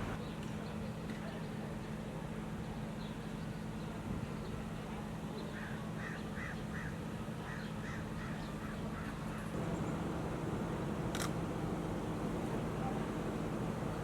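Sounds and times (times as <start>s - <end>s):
bird harsh calls: 9.6s - 14.0s
low hum: 9.6s - 14.0s
sharp click: 11.1s - 11.4s.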